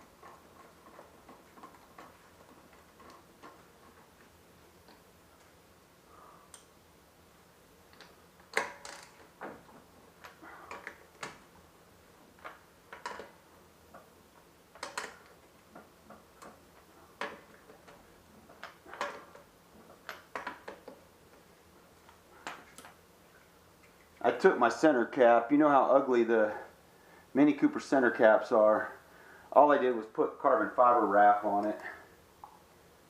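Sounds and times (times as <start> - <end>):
tools clicking and knocking: 0.0 - 5.0, 7.9 - 11.4, 12.4 - 14.1, 14.7 - 21.4.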